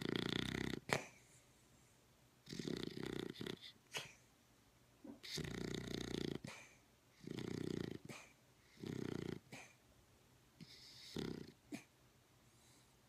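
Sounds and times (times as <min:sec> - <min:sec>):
dog snoring: 0:00.0 - 0:01.2, 0:02.4 - 0:04.2, 0:05.2 - 0:09.8, 0:10.6 - 0:11.9
dog breathing quietly: 0:10.6 - 0:13.0.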